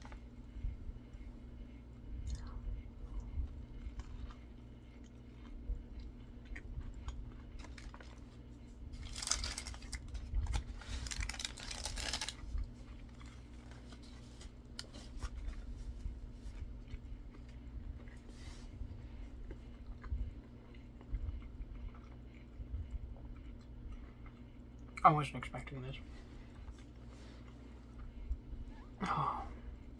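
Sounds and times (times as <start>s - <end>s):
chewing and crunching food: 0.0s - 29.9s
steady low hum: 0.0s - 29.9s
paper wrapping crackling: 9.0s - 15.2s.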